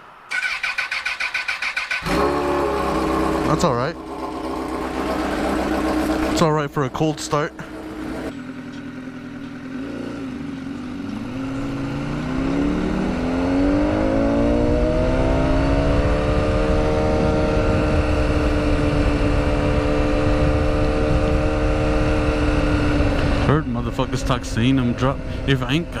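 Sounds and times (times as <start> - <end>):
motorcycle engine revving: 0.3 - 26.0.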